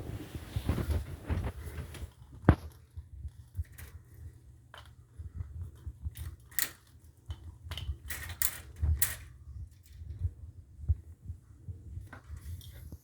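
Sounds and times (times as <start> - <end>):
handling clicks and crackles: 0.7 - 10.4.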